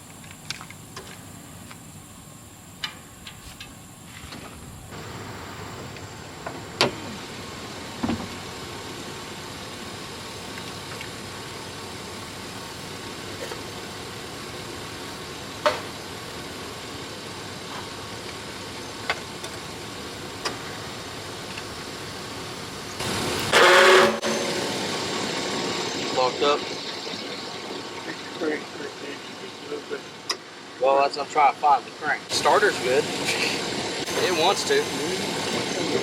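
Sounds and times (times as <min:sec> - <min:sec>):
vehicle engine running: 0:04.9 - 0:30.7.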